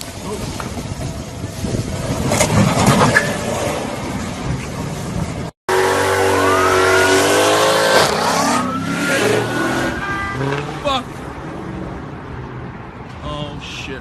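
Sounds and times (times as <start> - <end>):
wind noise: 0.0 - 5.5
road noise: 0.0 - 14.0.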